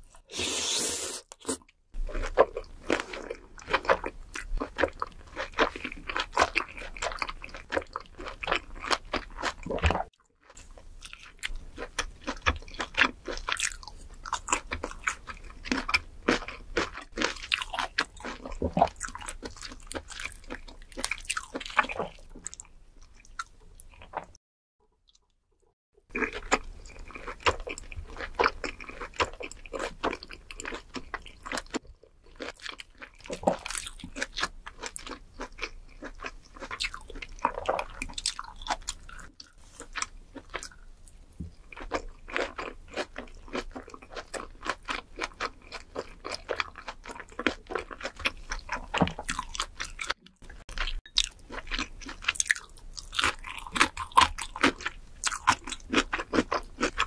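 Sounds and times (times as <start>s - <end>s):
wet chewing clicks and smacks: 41.4s - 57.0s.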